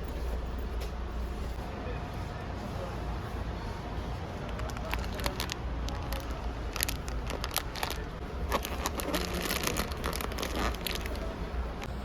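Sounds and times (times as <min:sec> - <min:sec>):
crinkling and clicking handling noise: 0:04.4 - 0:11.9.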